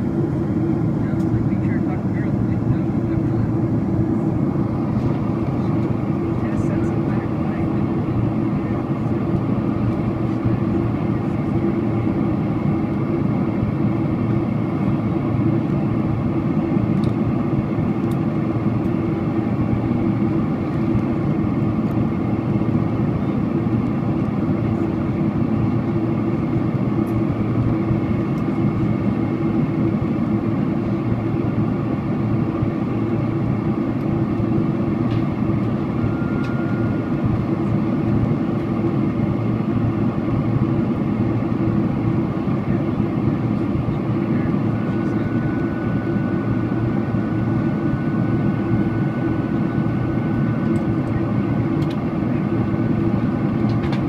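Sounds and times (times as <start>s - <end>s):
airliner cabin engine noise: 0.0s - 54.0s.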